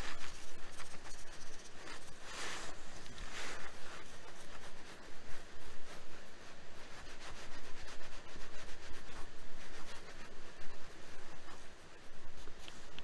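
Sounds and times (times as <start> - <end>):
scratching and rubbing strokes: 0.0 - 13.0.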